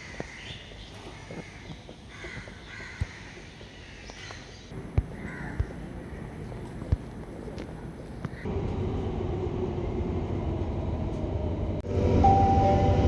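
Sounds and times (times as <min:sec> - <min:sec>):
birds calling: 0:00.0 - 0:06.7.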